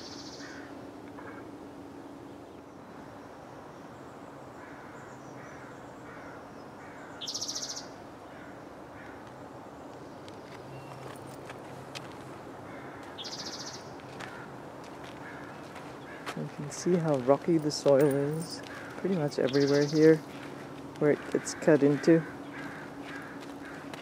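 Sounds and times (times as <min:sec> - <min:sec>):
songbird chirps: 0:00.0 - 0:00.8, 0:02.0 - 0:08.0, 0:09.1 - 0:12.3, 0:13.0 - 0:24.0
high buzzy bird trill: 0:00.0 - 0:06.4, 0:07.0 - 0:08.0, 0:13.2 - 0:13.9, 0:17.7 - 0:23.9.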